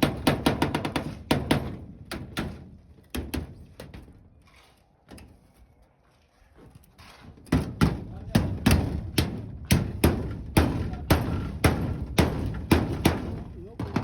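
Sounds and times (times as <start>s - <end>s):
faint knocking and scraping: 2.5s - 7.8s.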